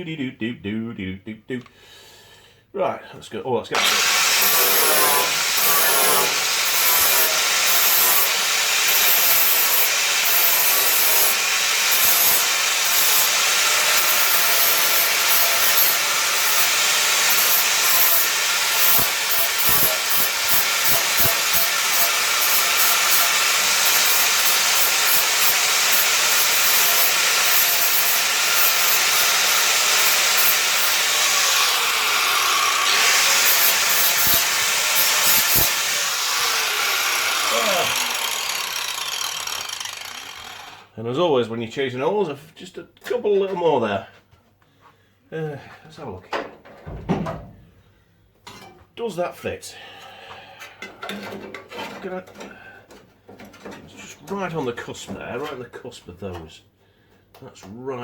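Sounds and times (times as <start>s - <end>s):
power tool grinding sheet steel: 3.8s - 40.9s.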